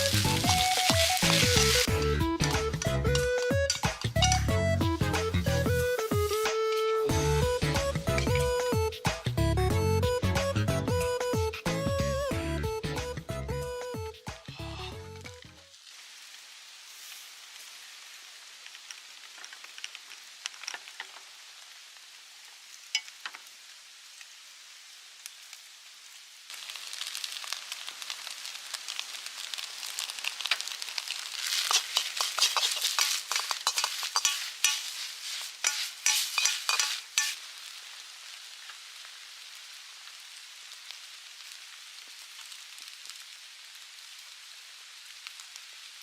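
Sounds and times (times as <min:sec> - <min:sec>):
light rain pattering: 0:00.0 - 0:09.4, 0:15.2 - 0:46.0
rice sizzling in a wok: 0:00.0 - 0:12.2, 0:12.8 - 0:46.0
metal spatula clattering on pan: 0:31.5 - 0:37.4.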